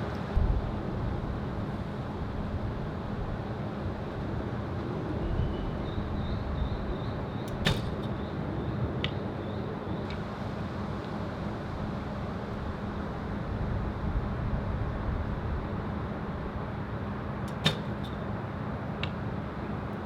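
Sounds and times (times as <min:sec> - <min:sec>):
wind rumble on microphone: 0:00.0 - 0:09.3, 0:11.6 - 0:16.6
bow string snap: 0:07.5 - 0:08.2, 0:17.5 - 0:18.3.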